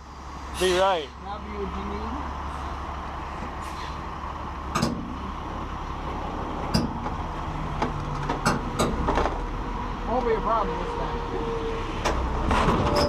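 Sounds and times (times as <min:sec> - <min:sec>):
diesel truck idling: 0:00.0 - 0:13.0
clanks and clicks: 0:07.8 - 0:09.5.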